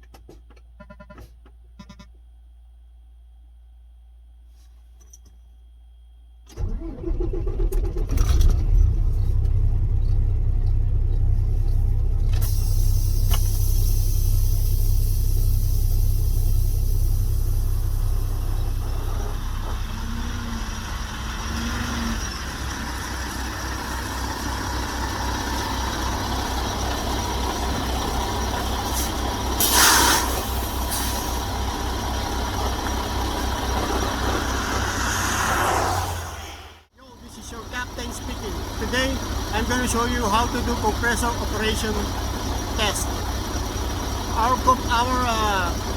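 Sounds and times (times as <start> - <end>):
truck engine starting and idling: 6.5 - 45.9
short burst of hiss: 28.9 - 31.4.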